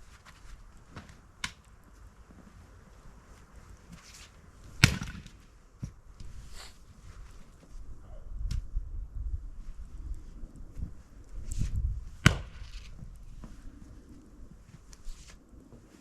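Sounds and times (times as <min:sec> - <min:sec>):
axe striking firewood: 0:04.8 - 0:05.4, 0:12.2 - 0:13.0.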